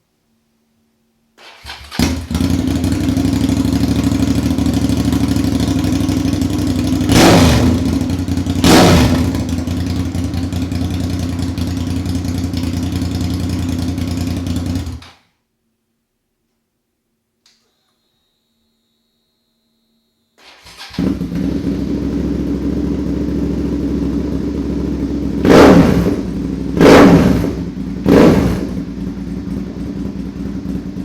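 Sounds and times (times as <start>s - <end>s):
motorcycle engine starting and idling: 1.4s - 15.2s, 20.4s - 31.0s
motorcycle throttle blips: 1.9s - 15.1s.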